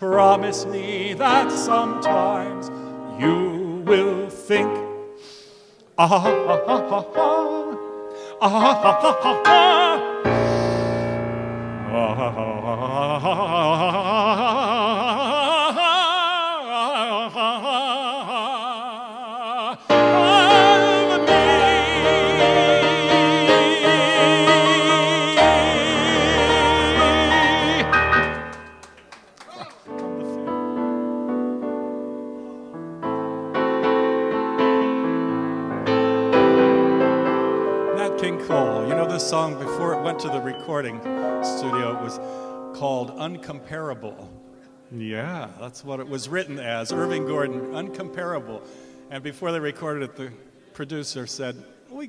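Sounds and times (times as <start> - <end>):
man singing with vibrato: 0.0 - 5.2, 5.9 - 28.5, 36.5 - 50.8
keyboard chords: 6.2 - 13.2, 19.9 - 29.0, 29.9 - 45.4, 46.8 - 49.3.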